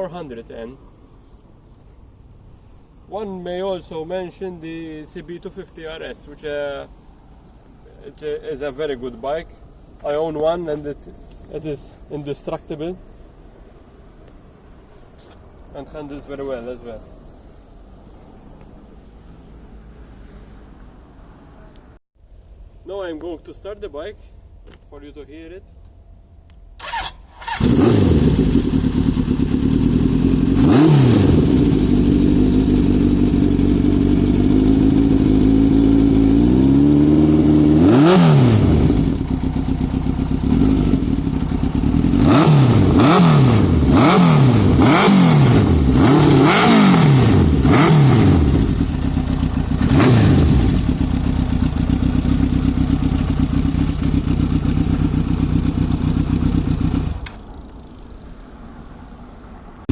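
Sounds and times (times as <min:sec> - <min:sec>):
motorcycle engine revving: 0:26.8 - 0:57.5
motorcycle engine starting: 0:26.8 - 0:58.2.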